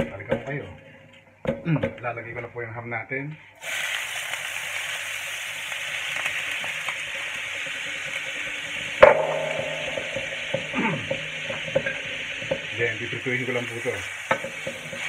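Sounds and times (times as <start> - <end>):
ham sizzling in hot oil: 3.6 - 15.0
sharp knock on metal pan: 9.0 - 12.6.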